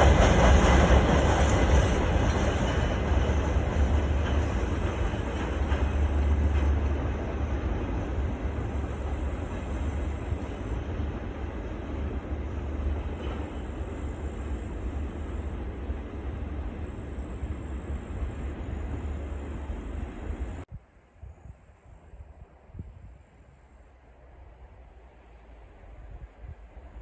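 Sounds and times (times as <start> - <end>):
freight train rumbling past: 0.0 - 20.7.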